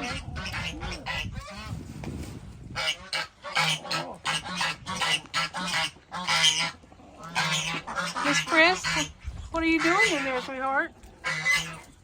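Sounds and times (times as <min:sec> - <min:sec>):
waterfowl calling: 0:02.7 - 0:12.0.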